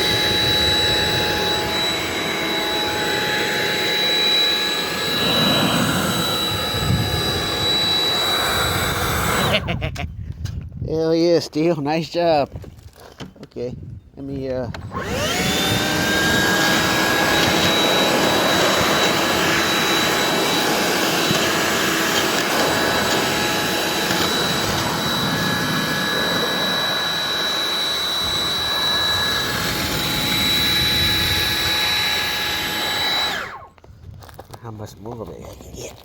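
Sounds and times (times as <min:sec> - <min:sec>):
leaf blower running: 0:00.0 - 0:09.7, 0:14.8 - 0:33.8.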